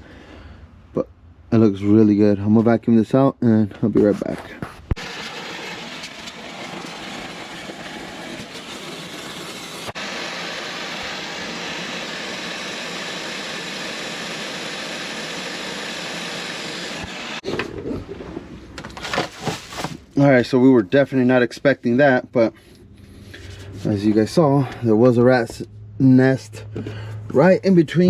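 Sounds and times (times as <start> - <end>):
vacuum cleaner running: 5.0 - 17.7.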